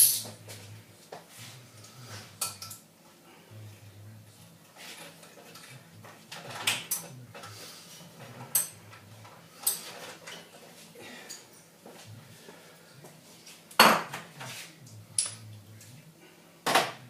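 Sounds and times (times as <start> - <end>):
metal tools clinking on metal: 8.4 - 8.8, 15.2 - 15.4.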